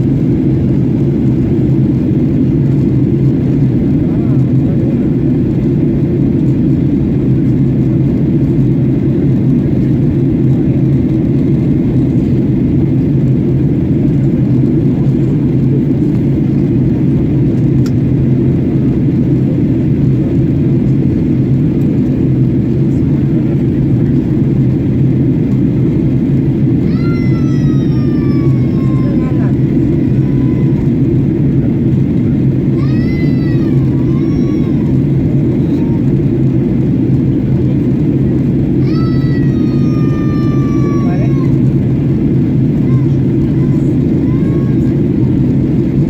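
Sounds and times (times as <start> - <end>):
airliner cabin drone: 0.0 - 46.0.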